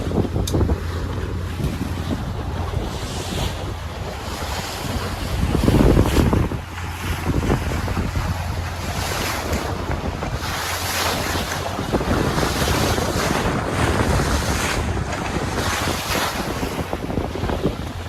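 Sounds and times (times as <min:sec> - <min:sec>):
sea washing around boat: 0:00.0 - 0:18.0
wind buffeting microphone: 0:00.0 - 0:18.0.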